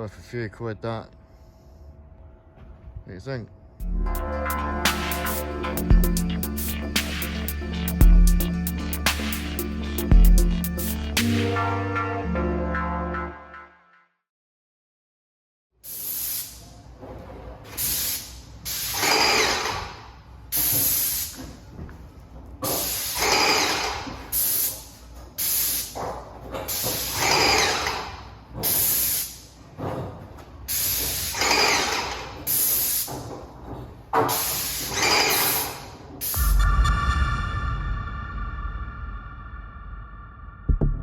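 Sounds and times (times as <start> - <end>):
sharp hissing bursts: 15.9 - 16.6.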